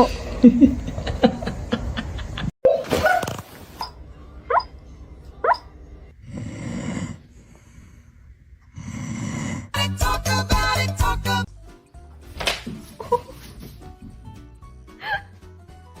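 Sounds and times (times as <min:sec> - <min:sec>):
pet squeaking: 0:05.4 - 0:05.7
pet snoring breaths: 0:06.2 - 0:09.8
music with a beat: 0:09.8 - 0:11.5.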